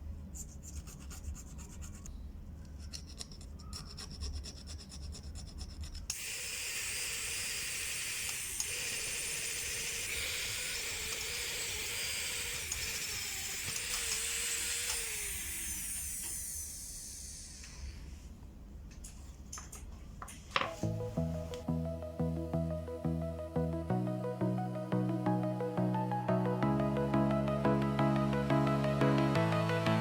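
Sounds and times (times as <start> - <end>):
small power tool running: 6.1 - 18.0.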